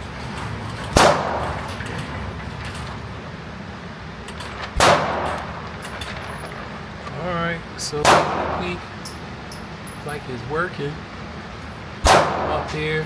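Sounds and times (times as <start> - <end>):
gunshots: 0.9 - 1.8, 4.6 - 6.8, 8.0 - 8.8, 12.0 - 12.9.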